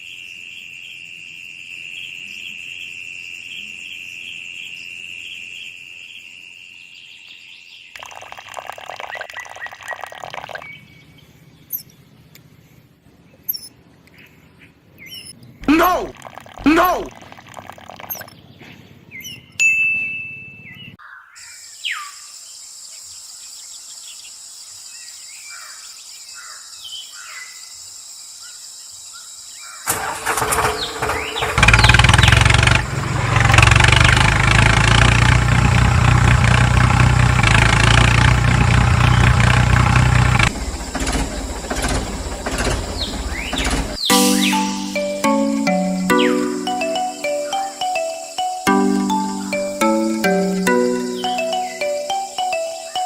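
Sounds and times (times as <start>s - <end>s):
birds chirping: 7.8s - 19.6s, 29.6s - 32.9s, 38.9s - 41.6s, 42.2s - 53.0s.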